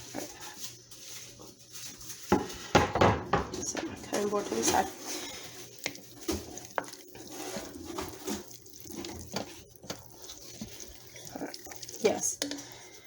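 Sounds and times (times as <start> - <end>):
soft kitchen clicks and knocks: 2.3 - 4.8.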